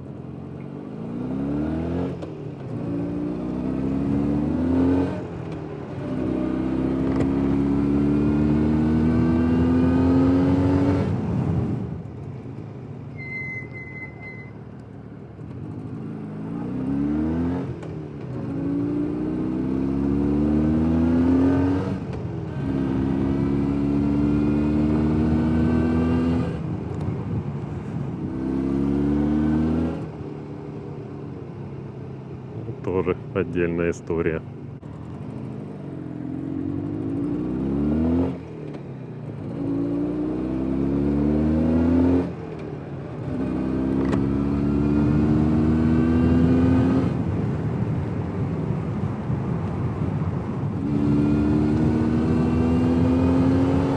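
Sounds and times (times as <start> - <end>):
motorcycle engine accelerating: 0.0 - 12.5, 13.6 - 31.2, 34.7 - 53.9
faint high beep: 13.1 - 14.6.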